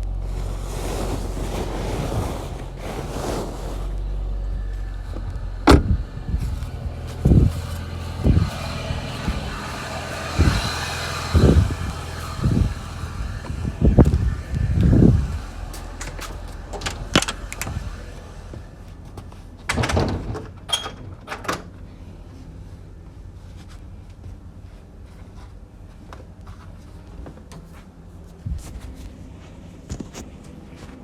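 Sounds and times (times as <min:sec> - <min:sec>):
car engine idling: 0:04.0 - 0:19.7.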